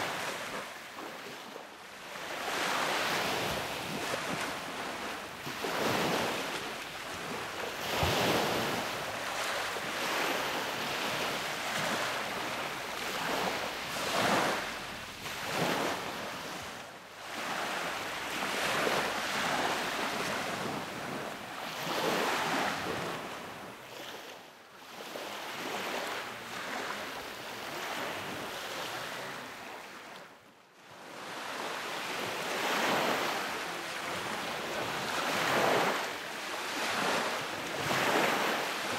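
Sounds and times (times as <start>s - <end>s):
sea waves breaking on a beach: 0.0s - 38.9s.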